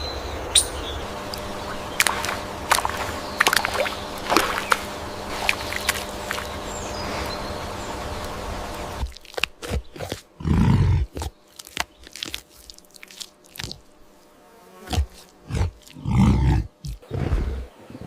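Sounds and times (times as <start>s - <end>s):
animal chewing with crunches: 8.2s - 14.0s, 14.8s - 17.1s
animal growls: 9.7s - 11.3s, 14.9s - 18.0s.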